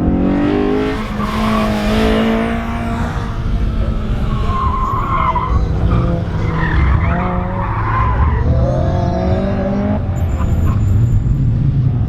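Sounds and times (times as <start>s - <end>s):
car engine revving: 0.0s - 11.0s
tyres squealing: 3.9s - 8.4s.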